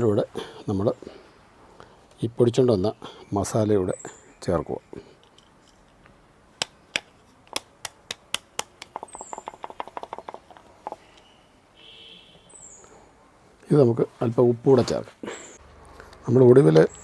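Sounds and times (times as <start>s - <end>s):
utensils tapping a container: 8.6s - 11.0s
high bird chirp: 9.0s - 9.6s, 11.0s - 13.0s.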